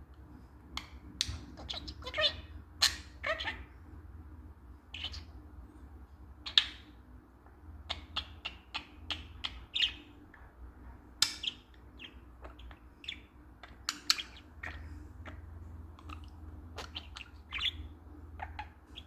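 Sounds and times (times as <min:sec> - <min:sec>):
budgerigar chirping: 0:01.2 - 0:03.7, 0:04.9 - 0:05.4, 0:06.4 - 0:07.0, 0:07.8 - 0:10.2, 0:11.2 - 0:19.0.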